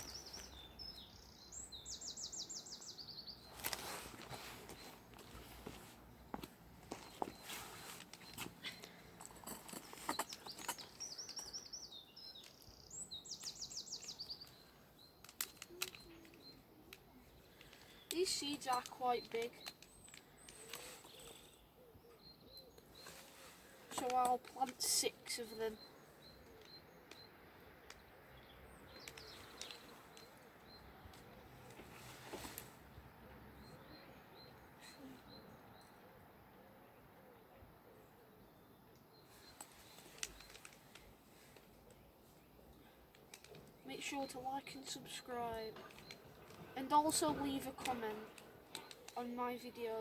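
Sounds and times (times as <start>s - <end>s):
distant birds chirping: 0.0s - 50.0s
outdoor background noise: 0.0s - 50.0s
handling clicks and rustling: 3.4s - 21.6s, 22.6s - 28.1s, 28.8s - 32.8s, 39.1s - 50.0s
songbird trilling: 10.2s - 16.6s.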